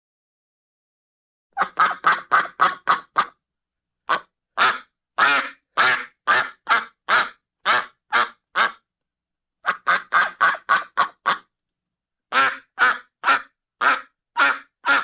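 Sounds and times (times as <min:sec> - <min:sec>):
duck quacking: 0:01.6 - 0:03.4, 0:04.1 - 0:08.8, 0:09.6 - 0:11.5, 0:12.3 - 0:15.0.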